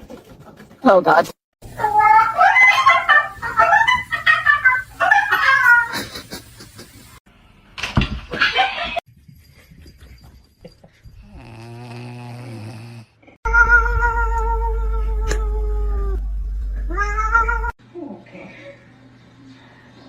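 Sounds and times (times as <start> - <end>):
cats meowing and yowling: 1.8 - 4.1, 13.5 - 16.2, 16.9 - 17.8.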